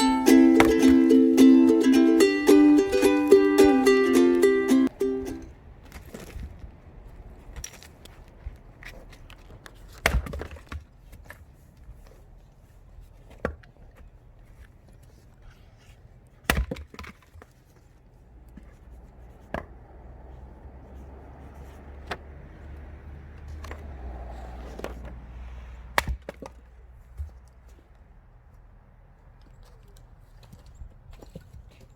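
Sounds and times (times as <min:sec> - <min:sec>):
axe splitting firewood: 0:00.3 - 0:01.2, 0:09.2 - 0:11.5, 0:16.4 - 0:17.6, 0:23.5 - 0:27.3.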